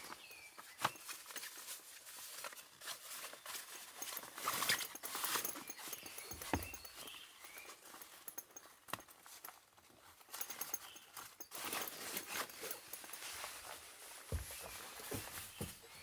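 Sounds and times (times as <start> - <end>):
light knocks and clicks: 4.0 - 7.6.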